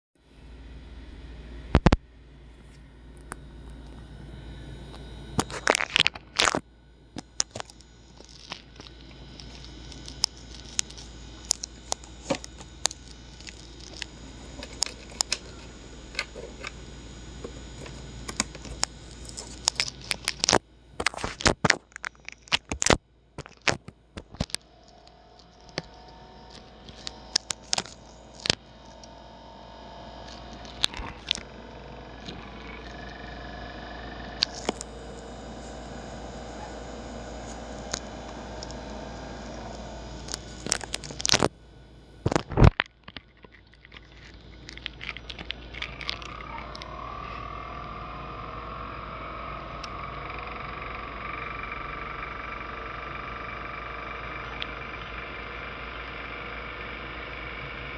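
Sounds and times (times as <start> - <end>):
high whine: 0.2 - 57.9
laptop cooling fan humming: 0.2 - 57.9
fan crackling and scraping clicks: 4.9 - 16.8, 17.4 - 29.2, 34.1 - 41.5, 42.3 - 47.4.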